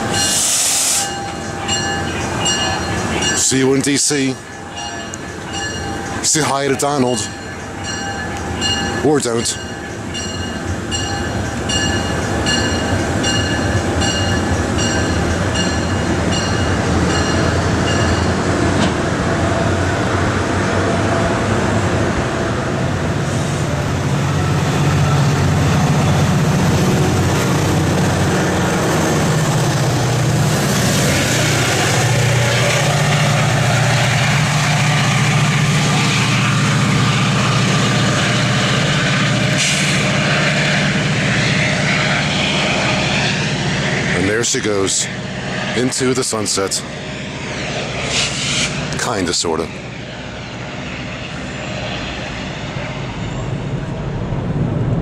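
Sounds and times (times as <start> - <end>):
train bell ringing: 0.0 - 18.5
locomotive drone: 0.0 - 55.0
wheel and rail noise: 0.0 - 55.0.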